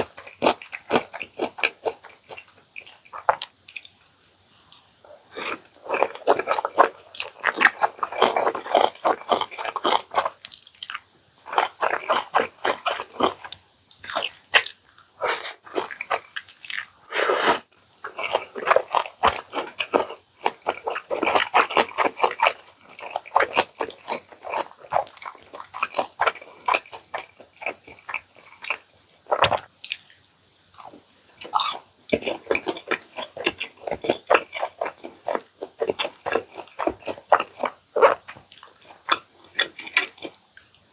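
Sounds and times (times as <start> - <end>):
person biting and chewing: 4.7 - 17.4, 30.8 - 40.4.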